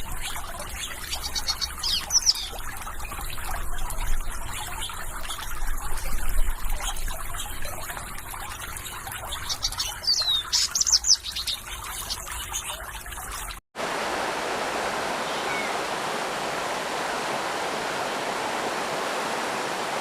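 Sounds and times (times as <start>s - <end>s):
small birds chirping: 0.0s - 7.9s, 8.7s - 13.2s, 15.1s - 15.9s
water trickling: 0.0s - 20.0s.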